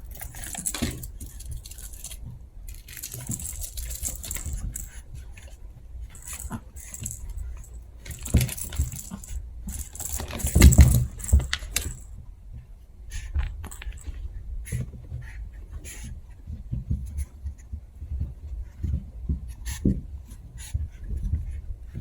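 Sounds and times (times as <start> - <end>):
puppies scuffling in play: 0.0 - 12.1.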